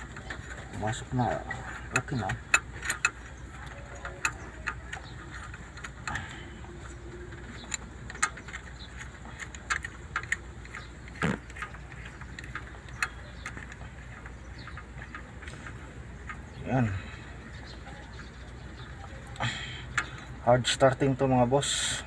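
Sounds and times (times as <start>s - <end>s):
metal tools clinking: 0.0s - 21.3s
low steady hum: 0.0s - 22.0s.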